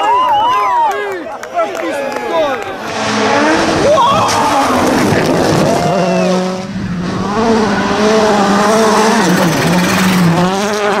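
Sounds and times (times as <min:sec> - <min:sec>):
rally car engine revving: 0:02.8 - 0:11.0.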